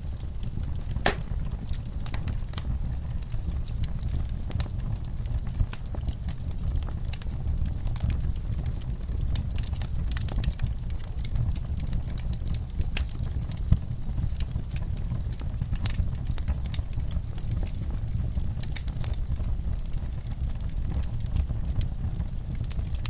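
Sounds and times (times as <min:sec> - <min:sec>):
low rumble of fire: 0:00.0 - 0:23.0
wood fire crackling: 0:00.0 - 0:23.0
sharp pop of fire: 0:01.0 - 0:01.5.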